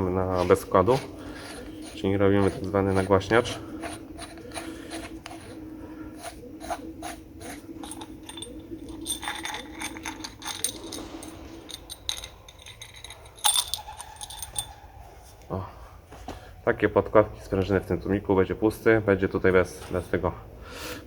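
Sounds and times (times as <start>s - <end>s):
small metal parts clicking and rattling: 7.4s - 14.8s.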